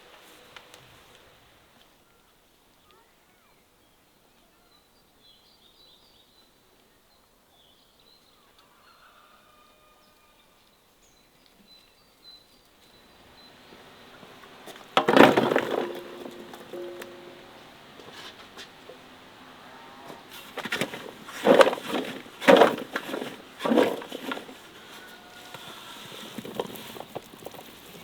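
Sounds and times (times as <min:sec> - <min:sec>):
faint birds chirping: 0:09.9 - 0:28.0.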